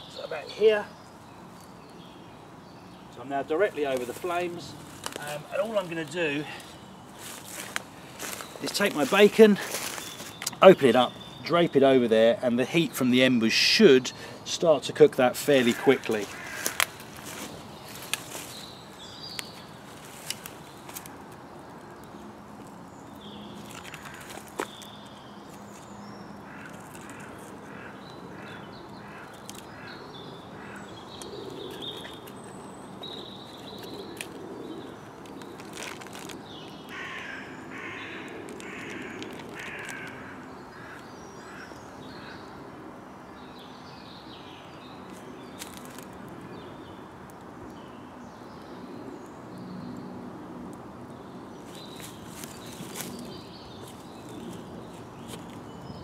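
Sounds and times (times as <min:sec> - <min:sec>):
woodland birds calling: 0:00.0 - 0:42.6
steady outdoor background: 0:00.0 - 0:56.0
harsh crow-like calls: 0:15.6 - 0:17.5, 0:23.9 - 0:24.4, 0:26.4 - 0:31.0, 0:36.9 - 0:42.6.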